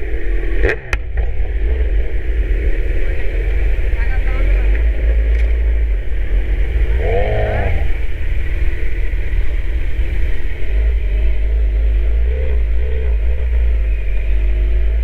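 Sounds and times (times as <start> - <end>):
motorcycle engine running: 0.0 - 15.0
wind rumble on microphone: 0.0 - 15.0.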